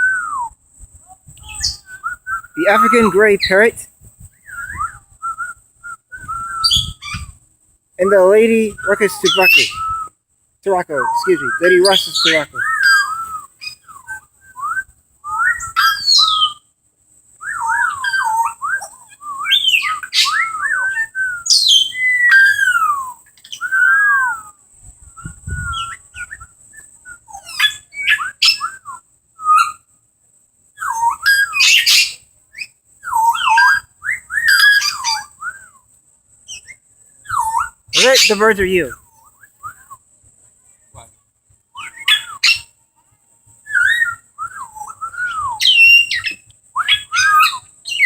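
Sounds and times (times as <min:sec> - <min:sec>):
parrots whistling: 0:02.5 - 0:03.8, 0:08.1 - 0:10.0, 0:10.7 - 0:14.2, 0:37.3 - 0:39.0.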